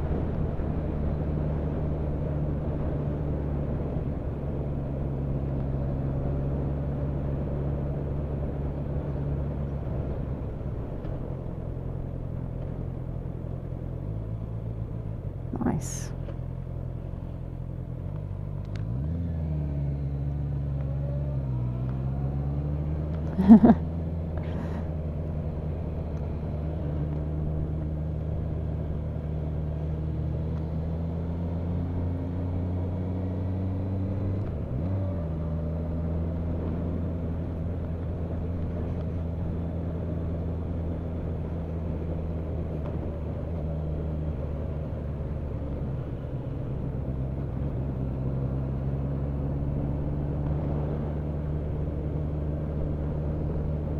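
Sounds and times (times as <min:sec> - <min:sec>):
motorcycle engine running: 0:00.0 - 0:53.9
road and wind noise: 0:00.0 - 0:53.9.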